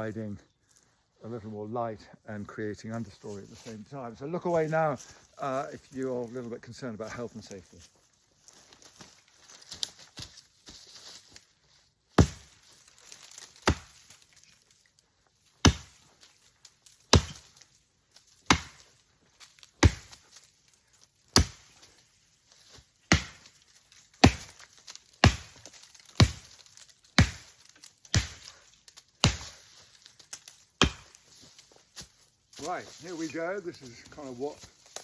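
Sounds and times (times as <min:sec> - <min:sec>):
axe chopping into tree: 0:12.2 - 0:12.6, 0:13.4 - 0:14.2, 0:15.6 - 0:16.0, 0:17.1 - 0:17.6, 0:18.4 - 0:18.9, 0:19.8 - 0:20.2, 0:21.3 - 0:21.8, 0:23.1 - 0:23.6, 0:24.2 - 0:28.5, 0:29.2 - 0:29.7, 0:30.3 - 0:31.2.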